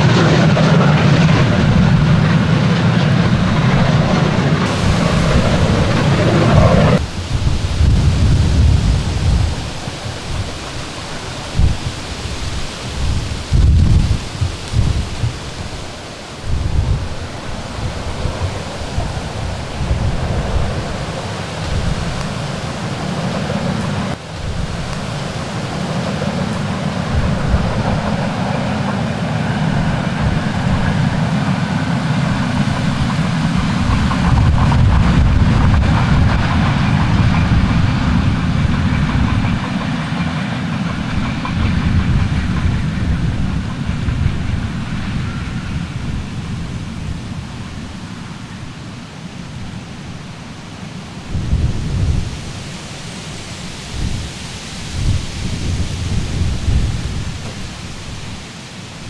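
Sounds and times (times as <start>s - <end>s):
wind rumble on microphone: 0.0s - 48.9s, 51.2s - 59.0s
train running by: 0.0s - 59.0s.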